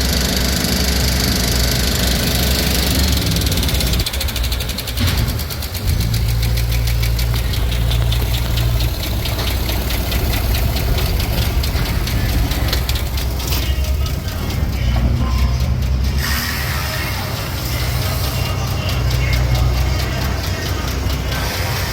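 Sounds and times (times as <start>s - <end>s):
engine idling rumble: 0.0s - 21.9s
fast even engine ticking: 0.0s - 21.9s.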